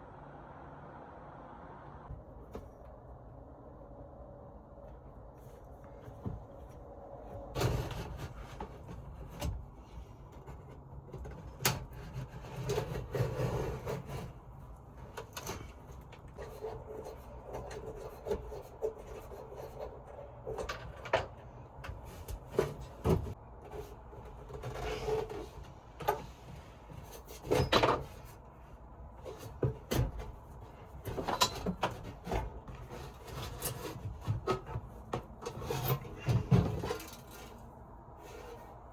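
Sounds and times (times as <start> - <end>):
wooden panels knocking and scraping: 29.2 - 38.7.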